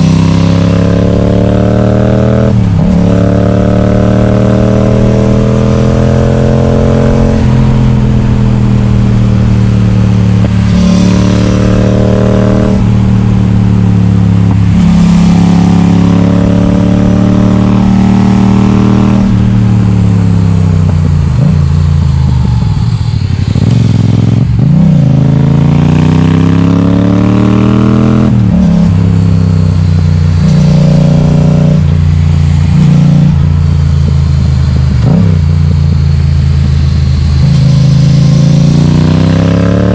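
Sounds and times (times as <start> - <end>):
loud motorcycle engine accelerating: 0.0 - 39.9.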